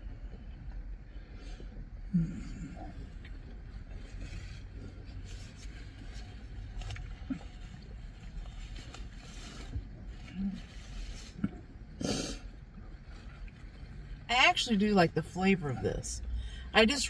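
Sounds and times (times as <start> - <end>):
car interior rumble: 0.0 - 17.0
people chewing crusty bread: 0.1 - 14.0.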